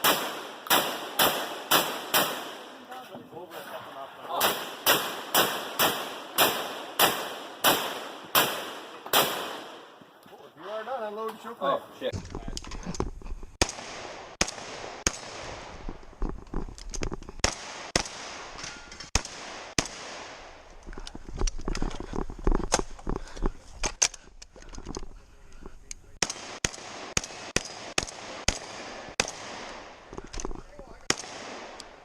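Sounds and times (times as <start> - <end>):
gunshots: 0.0 - 3.0, 4.3 - 10.0, 13.6 - 15.8, 17.4 - 20.6, 26.2 - 30.1, 31.0 - 32.0.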